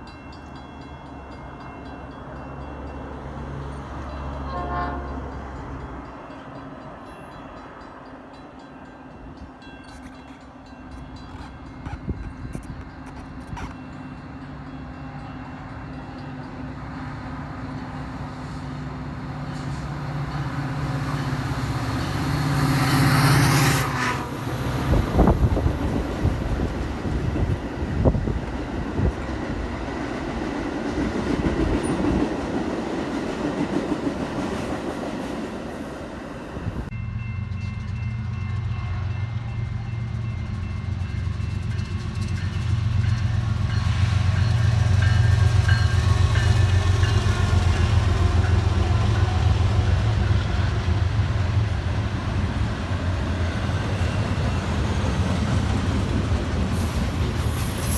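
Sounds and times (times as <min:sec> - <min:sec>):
locomotive engine: 0:09.2 - 0:22.2
train wheels clicking over rail joints: 0:09.6 - 0:14.7.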